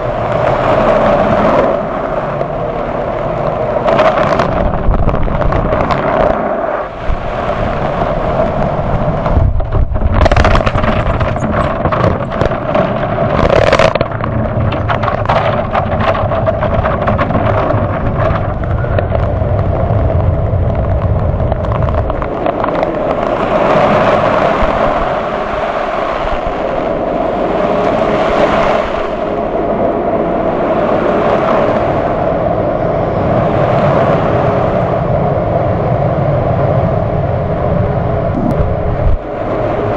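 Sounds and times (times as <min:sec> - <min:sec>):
machine drone: 0:00.0 - 0:28.0, 0:36.3 - 0:39.9
heavy rumble: 0:00.0 - 0:39.9.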